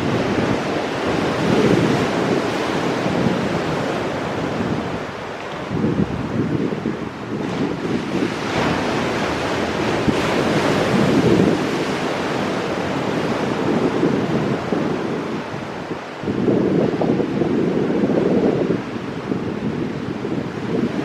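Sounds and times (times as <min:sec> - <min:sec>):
ocean waves breaking on rocks: 0:00.0 - 0:21.0
wind buffeting microphone: 0:00.0 - 0:21.0.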